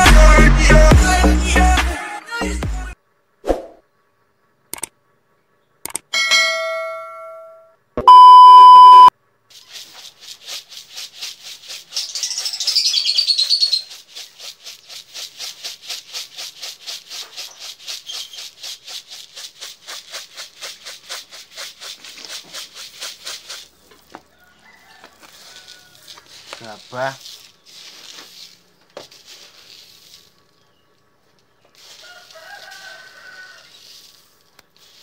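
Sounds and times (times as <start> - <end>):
birds chirping rapidly: 11.9 - 14.4.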